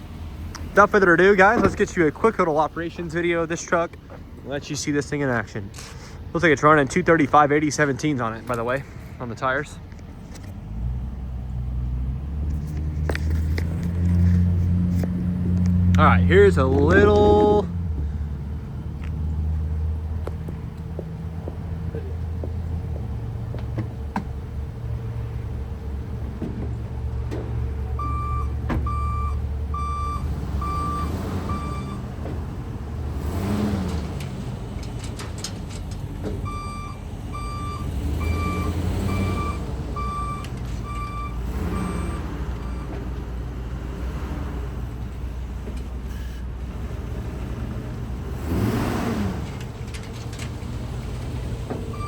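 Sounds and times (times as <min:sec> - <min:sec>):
truck engine running: 0:00.0 - 0:52.0
backup alarm beeps: 0:28.0 - 0:32.0, 0:36.4 - 0:42.9.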